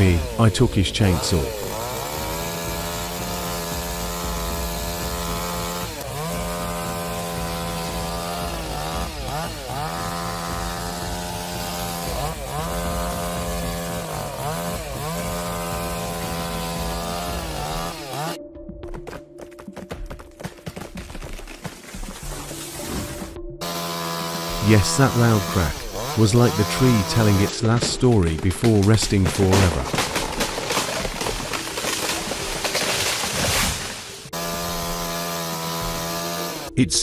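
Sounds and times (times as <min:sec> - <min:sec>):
chainsaw engine running: 0:00.0 - 0:18.4, 0:23.6 - 0:36.8.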